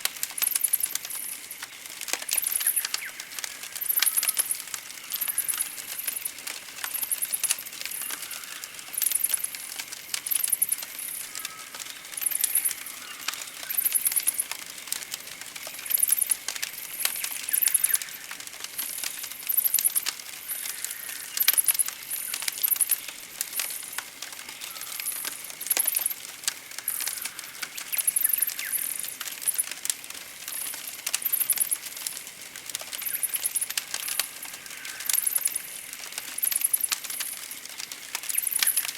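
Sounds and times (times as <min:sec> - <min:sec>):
campfire crackling and popping: 0:00.0 - 0:38.9
faint birdsong: 0:00.6 - 0:14.8, 0:15.6 - 0:26.2, 0:26.8 - 0:29.7.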